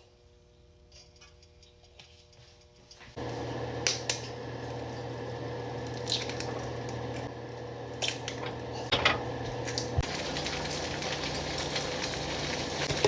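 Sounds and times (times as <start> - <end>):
kitchen appliance motor humming: 3.2 - 13.0.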